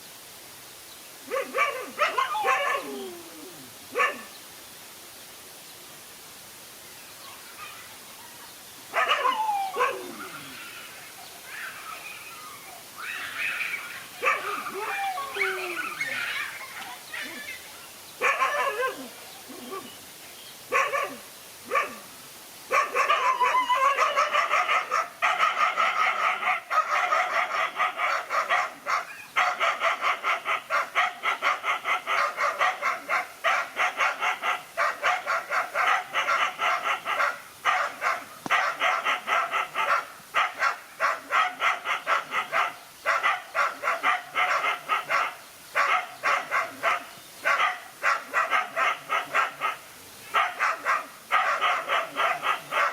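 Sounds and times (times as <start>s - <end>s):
dogs barking fast: 1.3s - 2.9s, 4.0s - 4.3s, 8.9s - 10.2s, 14.2s - 16.3s, 18.2s - 19.1s, 20.7s - 22.0s, 22.7s - 52.9s.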